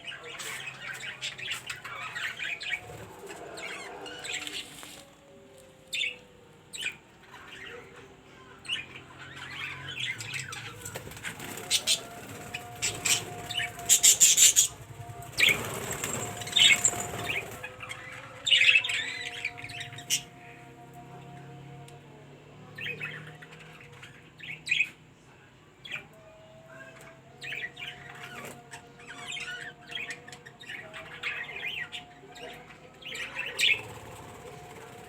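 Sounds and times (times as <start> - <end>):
parrots chirping and chattering: 0.0 - 20.6, 22.7 - 25.1, 25.8 - 35.0
wings flapping: 10.5 - 17.8, 33.6 - 35.0.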